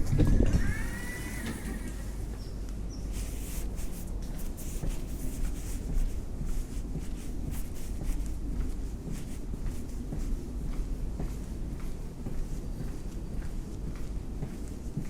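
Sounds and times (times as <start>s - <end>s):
train rumbling: 0.0s - 15.0s
high squeal: 0.6s - 2.3s.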